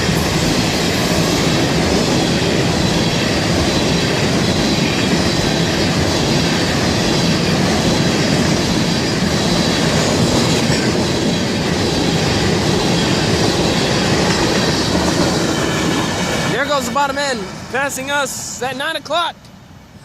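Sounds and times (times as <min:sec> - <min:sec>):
train wheels rumbling on rail: 0:00.0 - 0:18.8.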